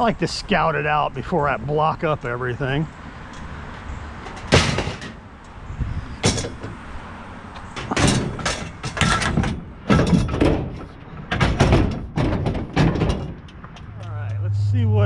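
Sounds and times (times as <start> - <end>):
junk clanking and clattering: 4.2 - 5.3, 6.2 - 7.0, 7.6 - 14.2.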